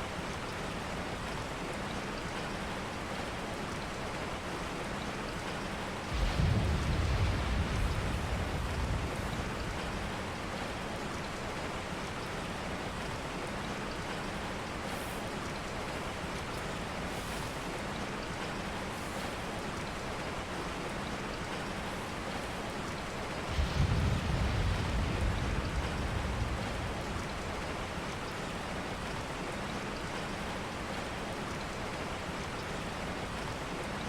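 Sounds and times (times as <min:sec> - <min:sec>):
rain falling on a surface: 0:00.0 - 0:34.0
low thunder rumble: 0:06.0 - 0:11.6, 0:23.4 - 0:29.3.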